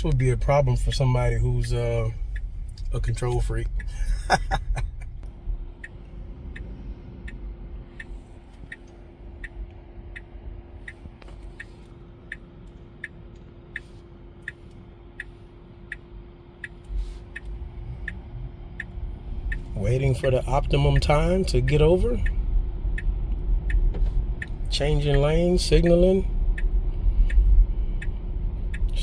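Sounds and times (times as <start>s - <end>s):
car turn signal ticking: 0.0s - 29.0s
faint steady hum: 0.0s - 29.0s
low road rumble: 0.0s - 29.0s.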